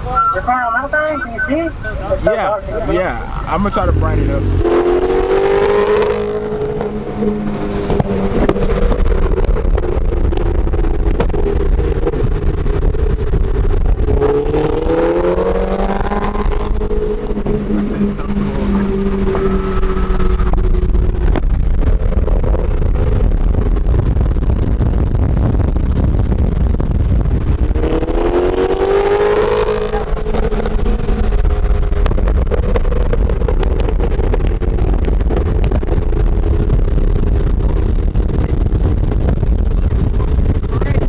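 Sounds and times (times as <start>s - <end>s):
road and wind rumble in car: 0.0s - 41.0s
engine revving up: 3.2s - 9.3s, 13.8s - 21.4s, 27.7s - 32.5s
exhaust pops: 3.2s - 41.0s.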